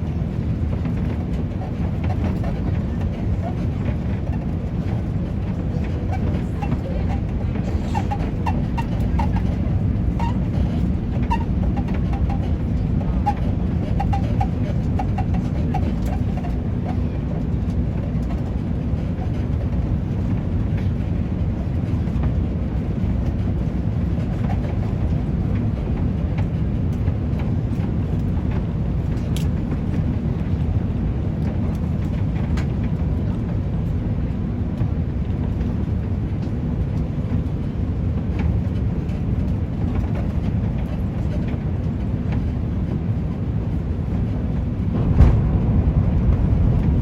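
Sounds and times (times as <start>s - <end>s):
airplane cabin engine rumble: 0.0s - 47.0s
faint short squeaks: 6.1s - 16.6s.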